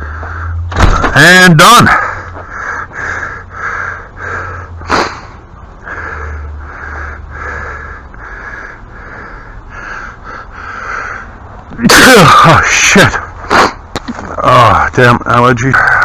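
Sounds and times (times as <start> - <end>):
rapid heavy breathing: 1.8 - 11.6
sharp sniff: 4.8 - 5.4, 13.4 - 13.8.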